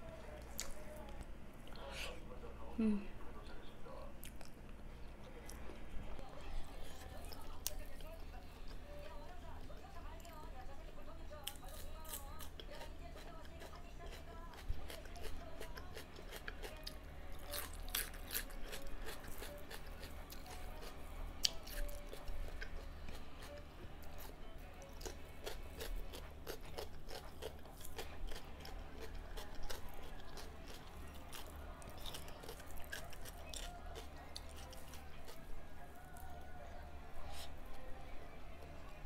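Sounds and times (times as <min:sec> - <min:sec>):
person chewing food: 0:11.4 - 0:36.4.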